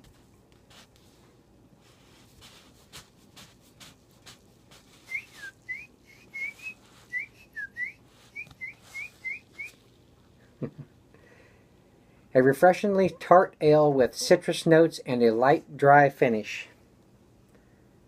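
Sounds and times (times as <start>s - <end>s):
person whistling birdlike chirps: 5.0s - 9.8s.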